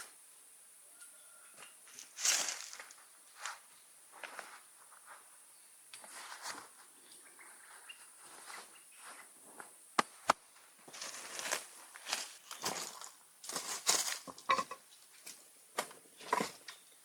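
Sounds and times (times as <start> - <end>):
soft rustles and scrapes: 1.6 - 5.4, 6.0 - 9.8, 10.5 - 15.4.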